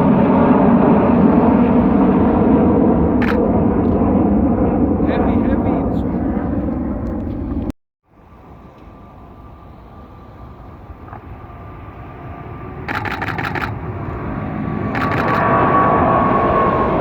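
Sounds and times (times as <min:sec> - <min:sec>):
jet engines at take-off power: 0:00.0 - 0:17.0
camera shutter bursts: 0:12.9 - 0:13.8, 0:14.9 - 0:15.4.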